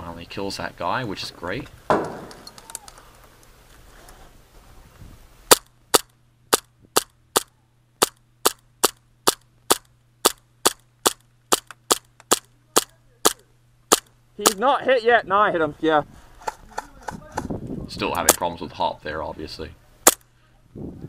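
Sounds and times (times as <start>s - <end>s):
airsoft pistol shots: 5.5s - 14.6s, 20.0s - 20.2s.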